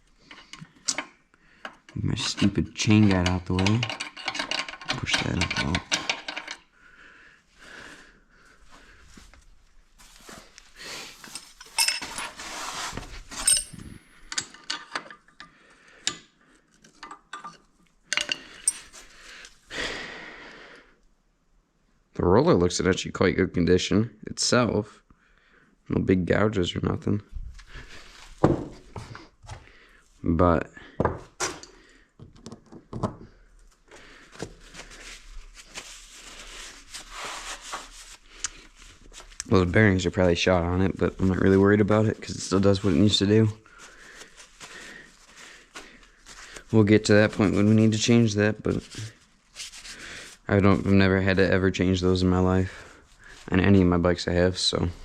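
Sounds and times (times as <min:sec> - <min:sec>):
metal parts clinking and scraping: 0:02.2 - 0:06.7, 0:11.2 - 0:12.6, 0:13.3 - 0:15.5, 0:16.8 - 0:19.0.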